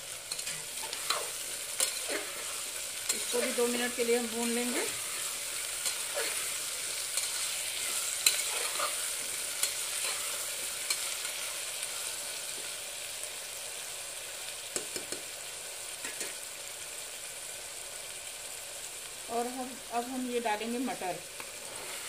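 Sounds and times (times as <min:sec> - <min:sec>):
vegetables sizzling in oil: 0:00.0 - 0:22.0
metal spatula scraping pot: 0:00.3 - 0:11.5.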